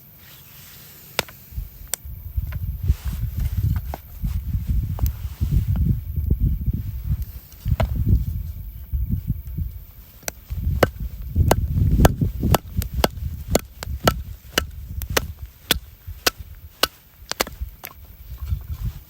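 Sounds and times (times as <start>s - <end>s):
low thudding and handling noise: 1.2s - 19.0s
axe chopping firewood: 10.8s - 18.0s.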